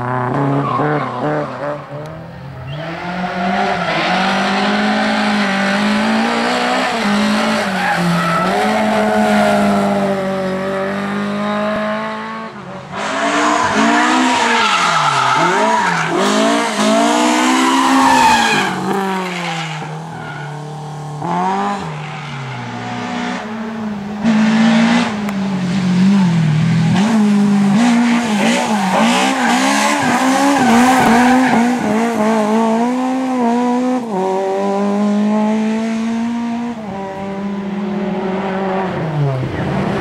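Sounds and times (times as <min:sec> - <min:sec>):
rally car engines revving: 0:00.0 - 0:40.0.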